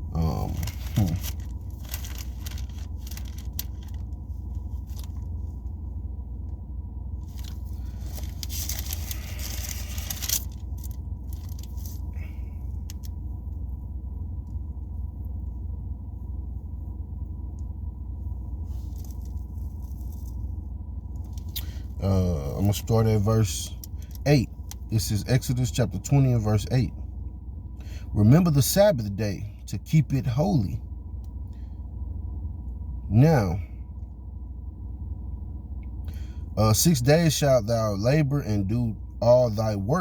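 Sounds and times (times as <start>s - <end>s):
steady low hum: 0.0s - 40.0s
pages rustling and riffling: 0.5s - 5.3s, 7.2s - 12.1s, 18.7s - 20.5s.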